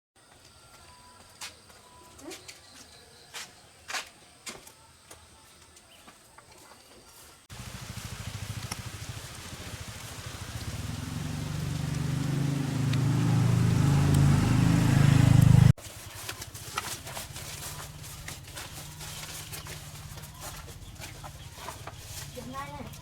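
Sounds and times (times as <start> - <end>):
small engine running: 7.5 - 22.4.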